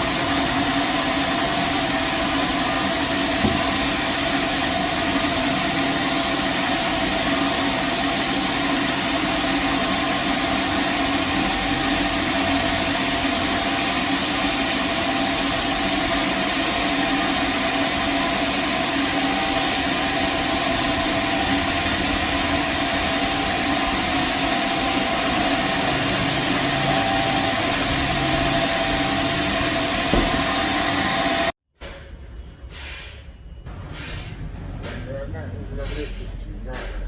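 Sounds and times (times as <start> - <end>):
sawmill machinery humming: 0.0 - 31.6
brief knock: 30.1 - 30.4.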